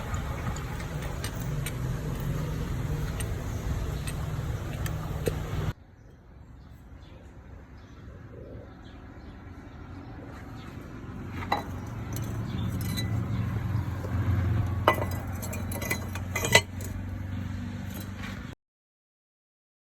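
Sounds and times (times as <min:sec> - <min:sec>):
sharp metallic clinks: 0:11.5 - 0:13.6, 0:14.6 - 0:17.0.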